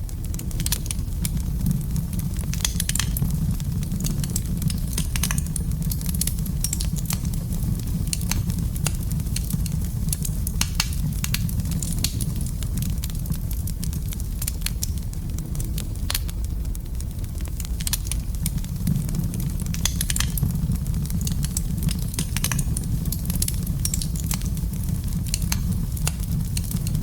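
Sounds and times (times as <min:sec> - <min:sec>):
fire crackles and pops: 0:00.0 - 0:27.0
low rumble of flame: 0:00.0 - 0:27.0.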